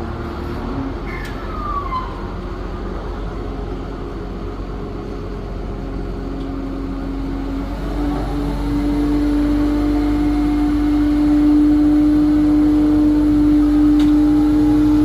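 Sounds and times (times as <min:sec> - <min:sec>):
crane diesel engine running: 0:00.0 - 0:15.0
falling squeal: 0:01.0 - 0:02.4.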